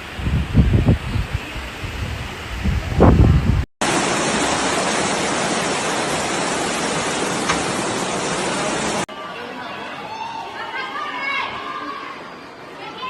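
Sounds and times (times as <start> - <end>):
wind buffeting microphone: 0.0 - 3.7
rushing water: 3.8 - 9.1.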